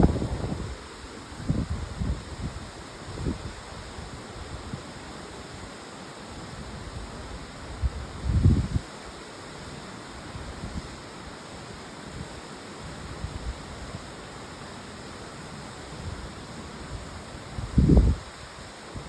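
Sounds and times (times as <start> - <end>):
strong wind rushing: 0.0 - 0.8
wind buffeting microphone: 0.0 - 0.8.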